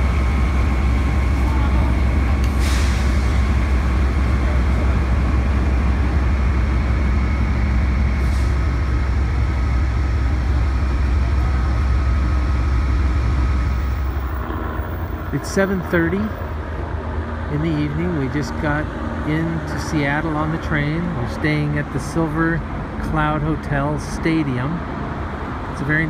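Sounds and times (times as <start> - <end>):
train standing at platform humming: 0.0 - 26.0
faint high whines: 12.3 - 16.8.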